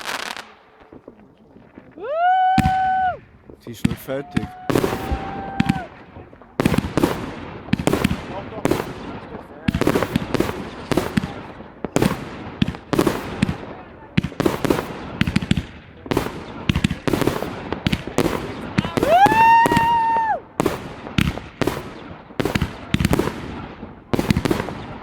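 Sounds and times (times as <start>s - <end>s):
whistling firework: 0.0s - 1.2s, 1.8s - 11.2s, 16.2s - 23.6s
fireworks banging: 0.0s - 25.0s.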